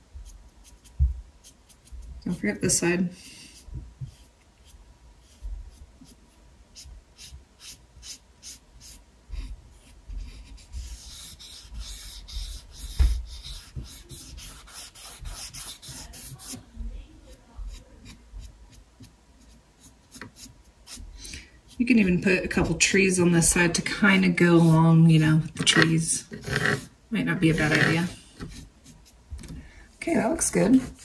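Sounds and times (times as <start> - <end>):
paintbrush dabbing on canvas: 0.1 - 2.4, 3.2 - 26.9.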